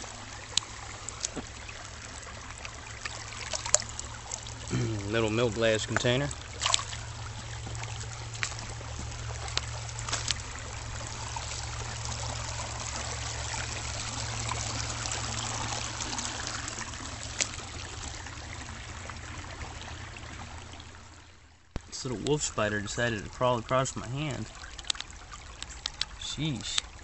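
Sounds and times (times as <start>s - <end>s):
low hum: 0.0s - 24.6s
creek water trickling: 0.0s - 27.0s
sharp clicks: 24.8s - 26.2s.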